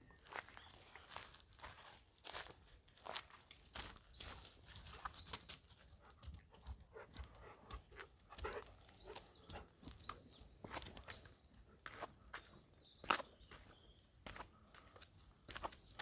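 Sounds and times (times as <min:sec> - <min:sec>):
songbird calling: 0:03.6 - 0:05.6, 0:08.4 - 0:16.0.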